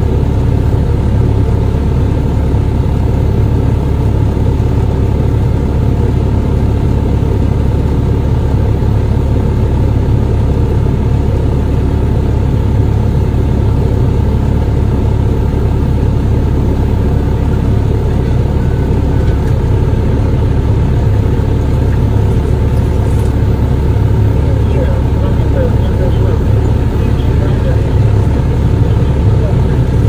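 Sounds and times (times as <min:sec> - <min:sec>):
vehicle engine rumbling: 0:00.0 - 0:30.0.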